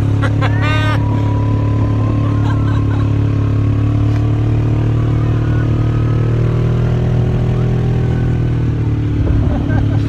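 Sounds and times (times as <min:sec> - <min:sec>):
vehicle engine running steadily: 0:00.0 - 0:10.0.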